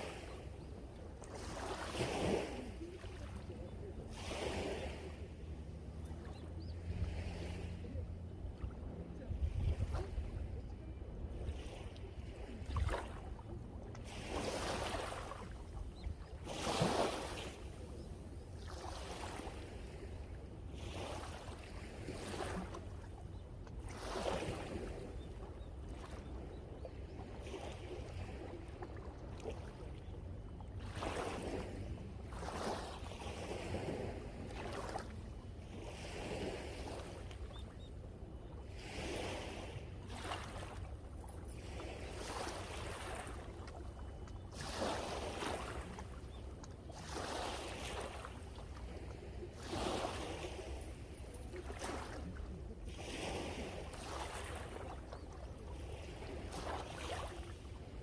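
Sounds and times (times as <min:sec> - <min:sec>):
wind rumble on microphone: 0:00.0 - 0:43.6
sea waves breaking on shore: 0:00.0 - 0:58.0.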